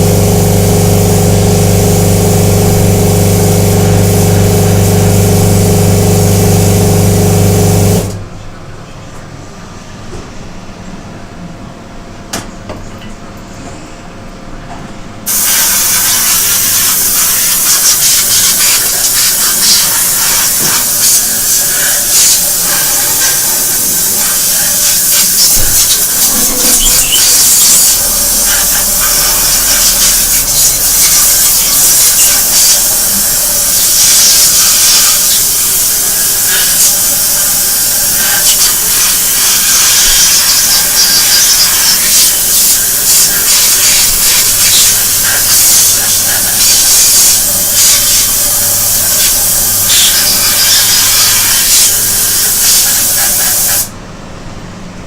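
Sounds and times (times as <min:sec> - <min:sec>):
spray jet hissing: 0:00.0 - 0:08.2, 0:15.3 - 0:53.9
machine hum: 0:00.0 - 0:50.7.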